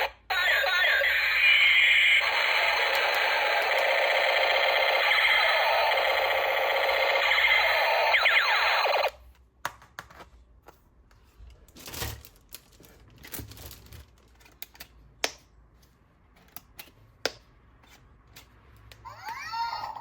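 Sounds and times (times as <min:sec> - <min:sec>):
electronic toy sweeping tones: 0:00.4 - 0:09.1
packaging rustles: 0:11.7 - 0:14.9.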